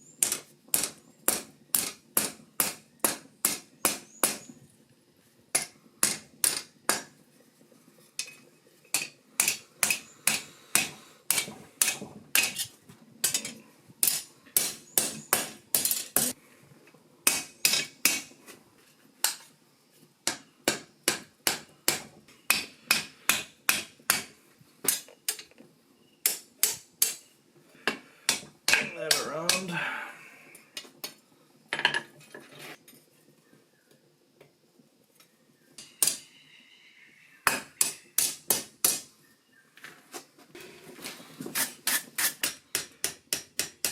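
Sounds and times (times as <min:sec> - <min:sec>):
hammer striking steel on anvil: 0:17.3 - 0:18.2, 0:28.3 - 0:29.6.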